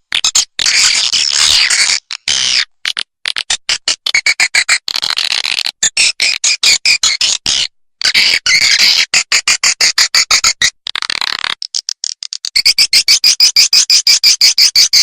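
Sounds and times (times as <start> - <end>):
sharp clicks and chirps: 0.1 - 15.0.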